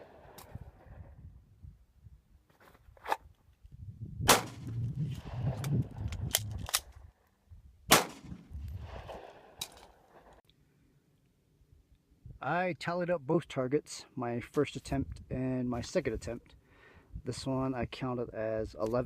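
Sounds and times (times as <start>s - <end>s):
pistol shots with echo: 4.3s - 4.7s, 7.9s - 8.4s.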